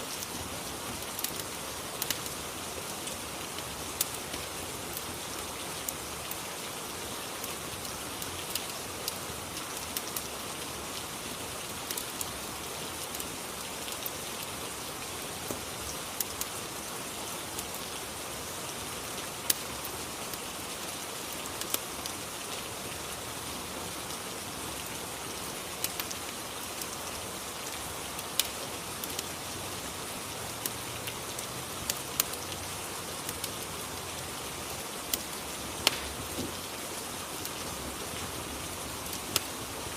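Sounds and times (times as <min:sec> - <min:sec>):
steady rain hiss: 0:00.0 - 0:39.9
sharp ticks and pops: 0:01.1 - 0:02.4, 0:28.4 - 0:29.3, 0:35.1 - 0:36.5.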